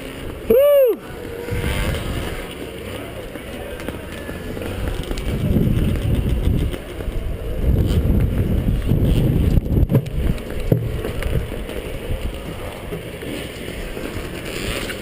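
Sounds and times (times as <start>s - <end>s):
dirt bike engine running: 0.0s - 15.0s
wind buffeting microphone: 0.3s - 2.5s, 4.3s - 15.0s.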